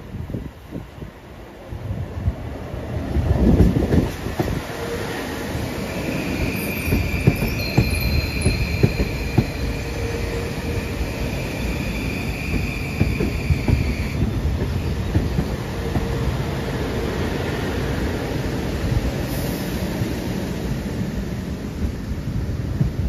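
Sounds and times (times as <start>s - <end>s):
train wheels squealing: 4.7s - 16.2s.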